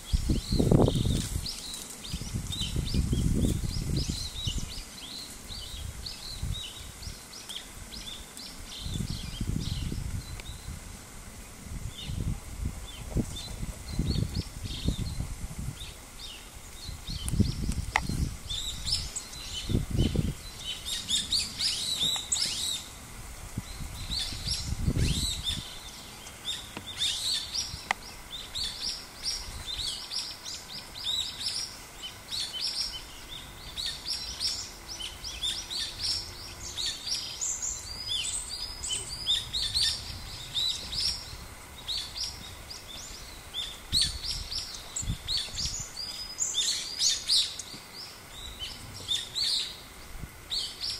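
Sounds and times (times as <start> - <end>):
small birds chirping: 0.0 - 10.8, 11.4 - 50.9.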